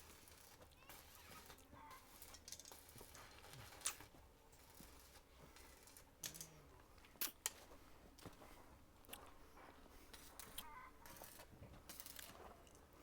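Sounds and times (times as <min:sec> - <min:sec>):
faint background hum: 0:00.0 - 0:13.0.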